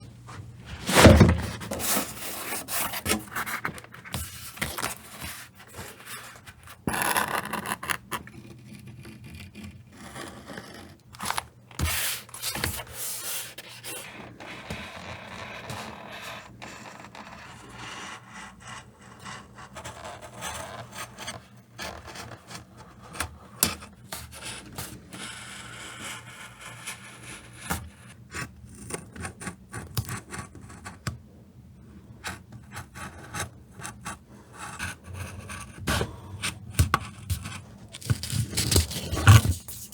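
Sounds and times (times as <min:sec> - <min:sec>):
tools rubbing and scraping leather: 0:32.4 - 0:39.9.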